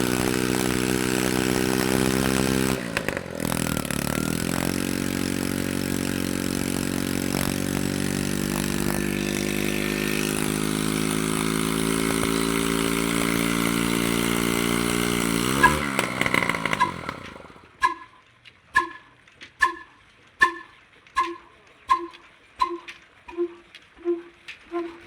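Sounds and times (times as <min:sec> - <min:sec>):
diesel engine running: 0:00.0 - 0:18.1.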